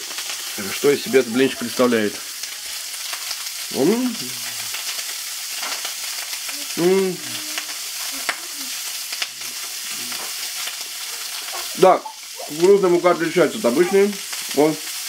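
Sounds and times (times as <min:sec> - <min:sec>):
sausage sizzling in a pan: 0:00.0 - 0:15.0
man humming: 0:06.6 - 0:08.5.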